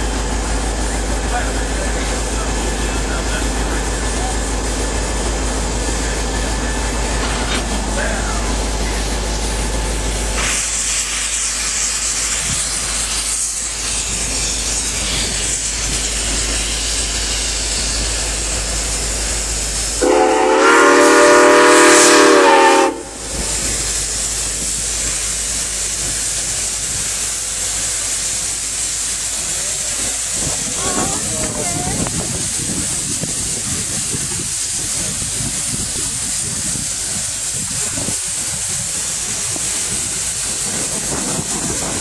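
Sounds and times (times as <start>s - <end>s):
steam locomotive hissing: 0.0s - 42.0s
steam whistle blast: 20.0s - 23.2s.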